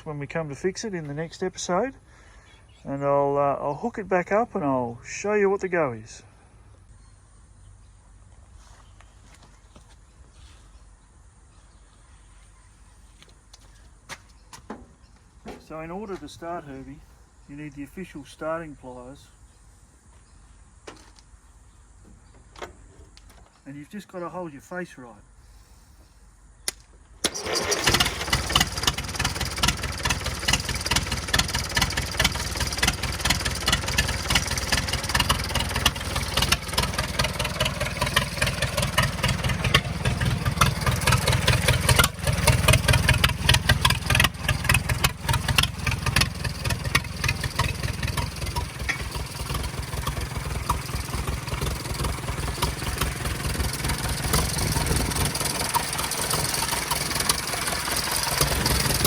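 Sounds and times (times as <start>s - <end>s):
click: 26.6s - 26.9s
tractor engine running: 27.2s - 59.0s.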